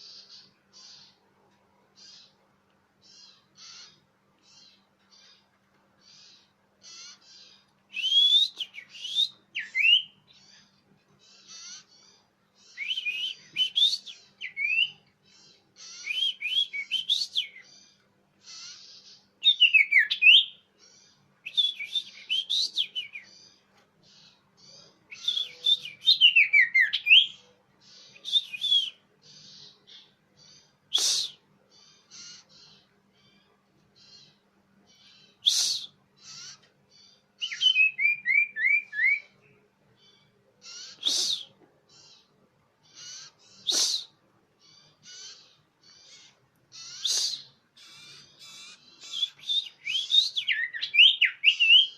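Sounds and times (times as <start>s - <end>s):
bird whistling and chattering: 6.1s - 10.4s, 12.7s - 15.0s, 15.8s - 17.7s, 18.5s - 20.6s, 21.4s - 23.3s, 25.1s - 30.0s, 30.9s - 31.4s, 35.0s - 36.6s, 37.4s - 39.4s, 40.6s - 42.3s, 42.9s - 44.2s, 45.0s - 51.9s.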